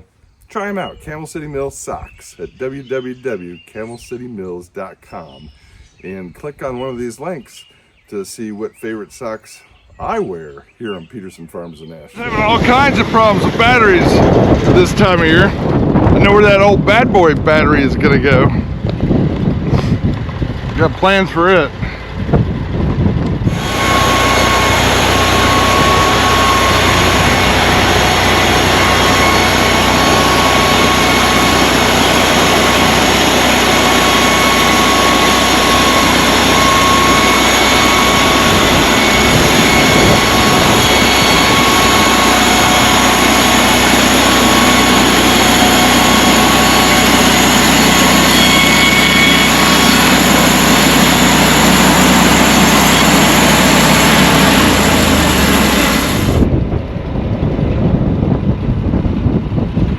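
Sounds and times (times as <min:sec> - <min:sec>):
engine running at speed: 0:12.2 - 0:59.9.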